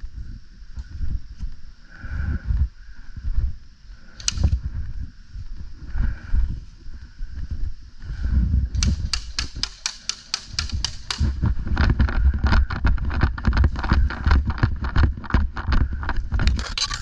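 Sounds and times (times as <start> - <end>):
wind rumble on microphone: 0.0 - 9.7, 10.5 - 17.0
airsoft guns firing: 8.8 - 11.4.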